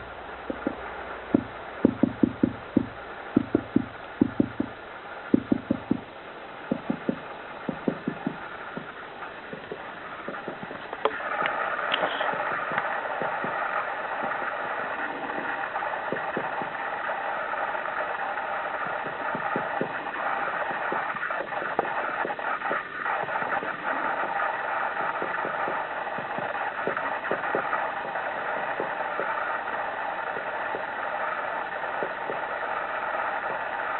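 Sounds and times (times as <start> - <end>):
background hiss: 0.0 - 33.9
woodpecker tapping on wood: 0.4 - 6.1, 6.7 - 14.4, 15.0 - 16.8, 18.8 - 29.4.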